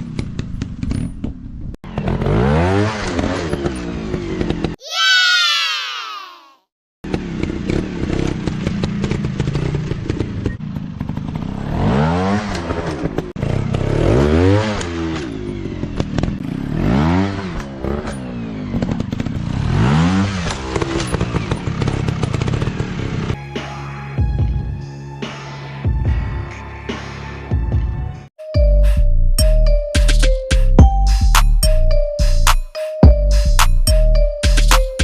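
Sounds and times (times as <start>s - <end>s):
dirt bike engines running: 0.0s - 4.8s, 7.1s - 23.4s
dirt bike revving: 1.9s - 4.8s, 7.1s - 23.4s.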